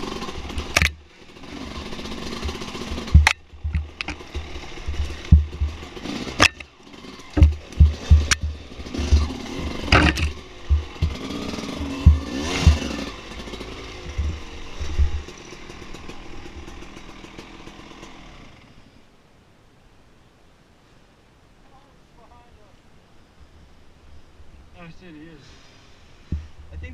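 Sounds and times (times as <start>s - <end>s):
dirt bike engine revving: 0.0s - 18.8s
sharp knocks: 2.4s - 6.6s, 7.3s - 13.0s, 14.1s - 14.4s
heavy low thumps: 2.5s - 6.0s, 7.4s - 13.0s.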